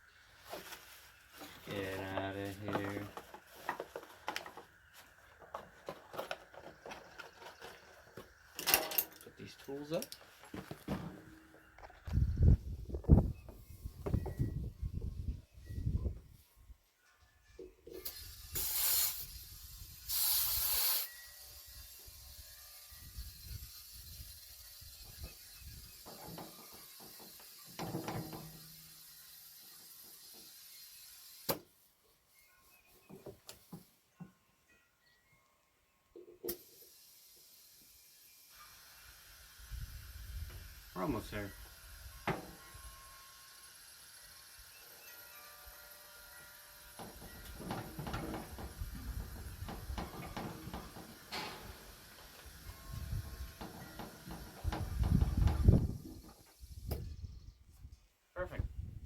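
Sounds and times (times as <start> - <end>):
tools and parts knocking and rattling: 2.6 - 12.2, 26.0 - 28.6, 47.0 - 52.3, 53.6 - 56.4
tools clattering: 5.5 - 11.5, 50.0 - 51.9.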